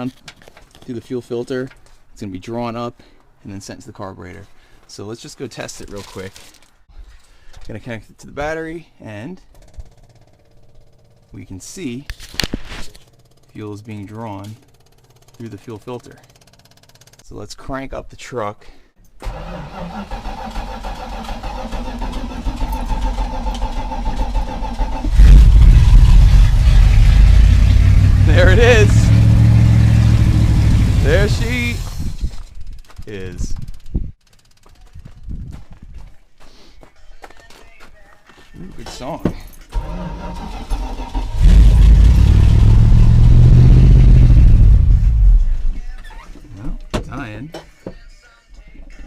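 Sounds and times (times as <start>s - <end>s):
starter cranking engine with whine: 14.6s - 15.5s, 16.2s - 17.2s, 19.2s - 32.9s, 39.7s - 45.6s
engine starting and running: 19.2s - 32.4s, 39.7s - 45.7s.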